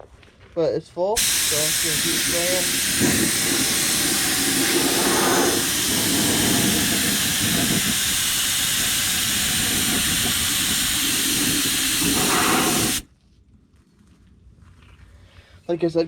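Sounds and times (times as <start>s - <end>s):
air spray gun hissing: 1.2s - 13.1s.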